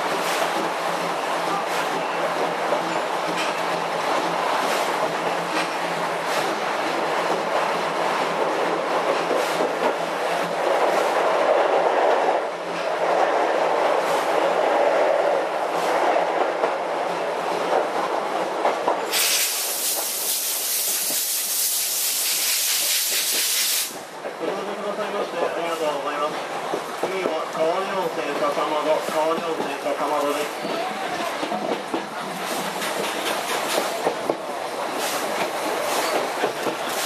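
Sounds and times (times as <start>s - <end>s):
steam train rumbling on track: 0.0s - 37.0s
loud steam hiss: 19.0s - 24.1s.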